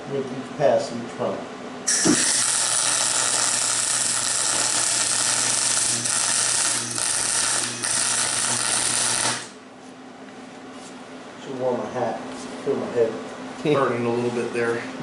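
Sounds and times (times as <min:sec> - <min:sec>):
welder hum: 0:01.9 - 0:09.6
welding arc crackling: 0:01.9 - 0:09.6.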